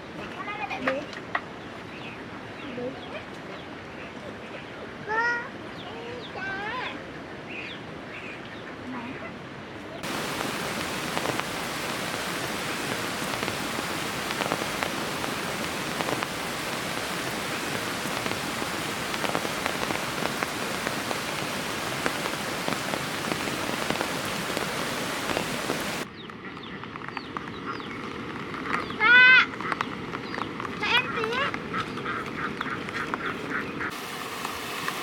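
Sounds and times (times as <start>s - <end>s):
heavy rain falling: 10.0s - 26.1s, 33.9s - 35.0s.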